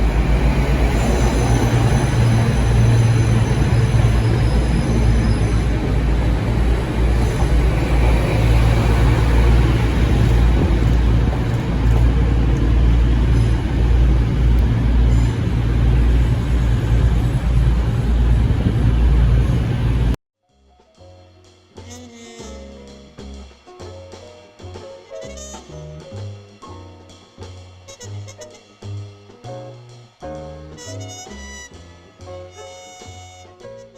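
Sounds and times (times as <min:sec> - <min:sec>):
train passing close by: 0:00.0 - 0:20.2.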